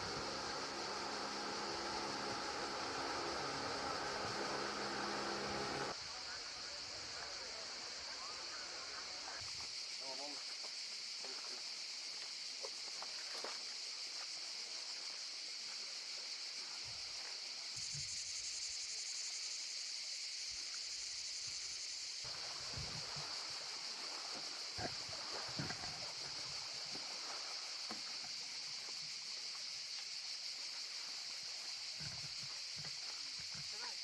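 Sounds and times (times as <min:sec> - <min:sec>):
high-pitched hiss: 0:00.0 - 0:34.0.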